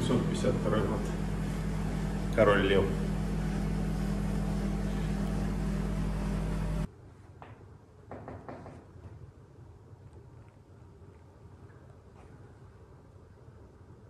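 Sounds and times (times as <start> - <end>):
machine hum with low drone: 0.0 - 6.9
faint knocks: 7.4 - 9.2.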